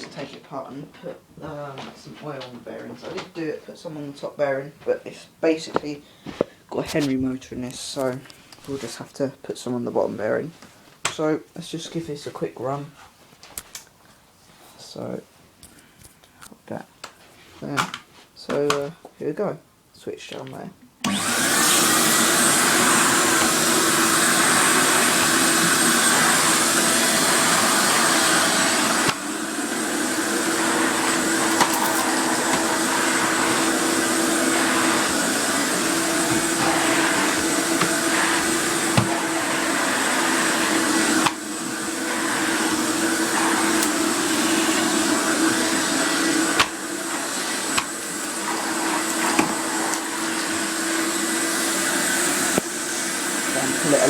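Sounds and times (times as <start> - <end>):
vacuum cleaner humming and whining: 21.0 - 54.0.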